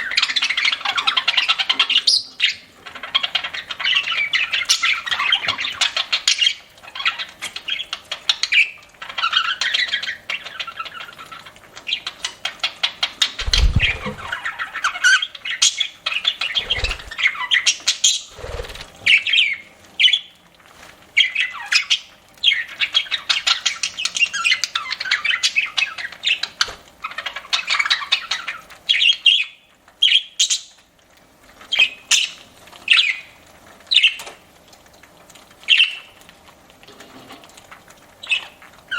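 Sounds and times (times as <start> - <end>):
budgerigars chirping and chattering: 0.0 - 20.2
low thumps: 13.4 - 14.3.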